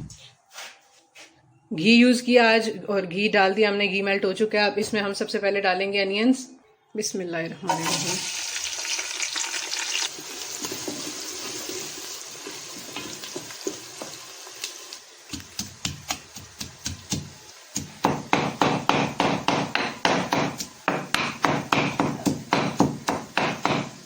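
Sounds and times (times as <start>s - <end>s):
onions sizzling in fat: 7.7s - 24.0s.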